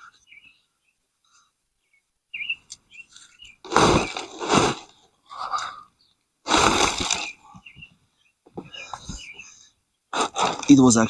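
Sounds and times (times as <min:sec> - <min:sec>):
soil rustling: 0:02.9 - 0:05.7, 0:06.5 - 0:07.8, 0:10.1 - 0:11.0
pot and soil scraping: 0:03.6 - 0:05.0, 0:06.5 - 0:07.4, 0:10.2 - 0:11.0.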